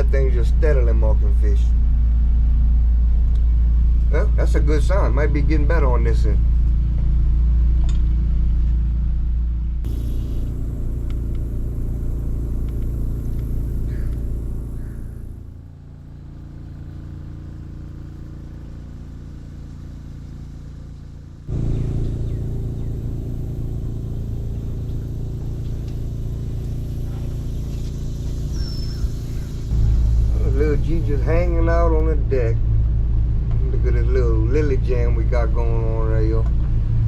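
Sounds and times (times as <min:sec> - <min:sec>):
boat motor rumbling: 0:09.9 - 0:16.2, 0:21.5 - 0:37.0.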